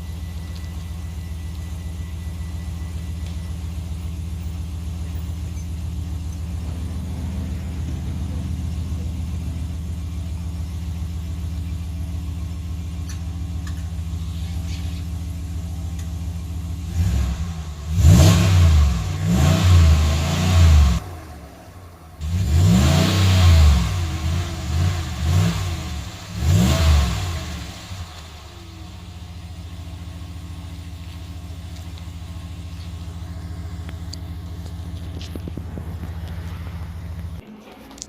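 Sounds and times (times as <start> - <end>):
pickup engine idling and revving: 0.0 - 37.4.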